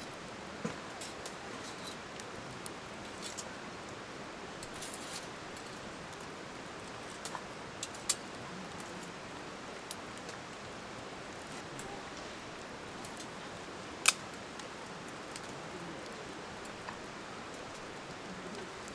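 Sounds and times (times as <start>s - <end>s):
campfire crackling: 0.0s - 18.9s
sharp pops from fire: 14.0s - 14.7s.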